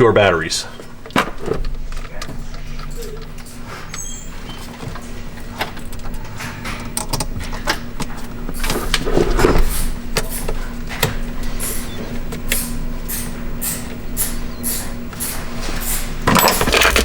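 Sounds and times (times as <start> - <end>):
scraping and rustling: 15.6 - 17.0.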